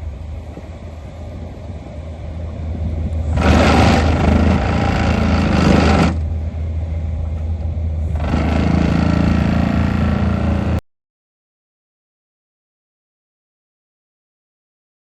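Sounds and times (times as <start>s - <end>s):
excavator engine: 0.0s - 10.8s
hydraulic plate compactor running: 3.3s - 6.4s, 8.1s - 10.8s.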